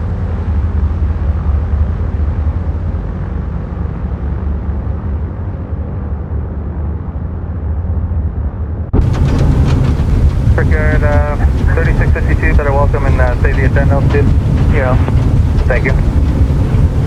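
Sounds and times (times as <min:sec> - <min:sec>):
piston aircraft engines rumbling: 0:09.0 - 0:17.0.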